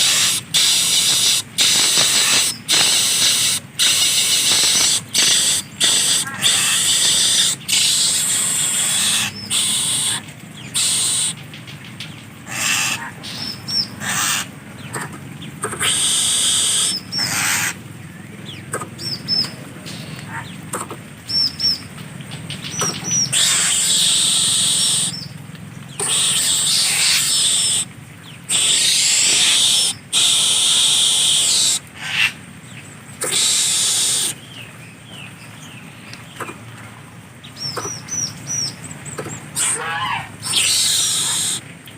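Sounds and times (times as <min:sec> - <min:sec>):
bird hissing: 0:00.0 - 0:10.2, 0:10.8 - 0:11.4, 0:12.5 - 0:13.4, 0:14.0 - 0:14.5, 0:15.6 - 0:17.8, 0:23.3 - 0:25.2, 0:26.0 - 0:27.9, 0:28.5 - 0:32.4, 0:33.2 - 0:34.4, 0:39.6 - 0:41.6.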